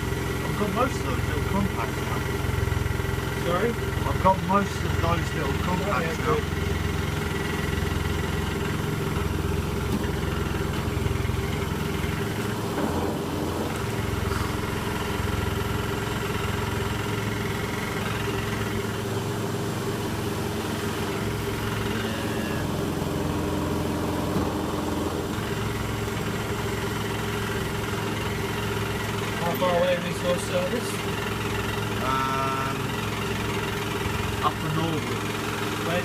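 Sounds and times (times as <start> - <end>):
washing machine spinning: 0.0 - 36.0.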